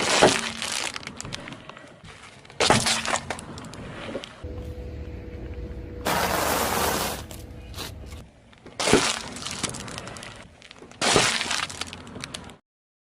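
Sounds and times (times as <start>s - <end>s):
objects crushed under tyre: 0.0s - 1.5s, 6.1s - 7.5s, 8.7s - 12.6s.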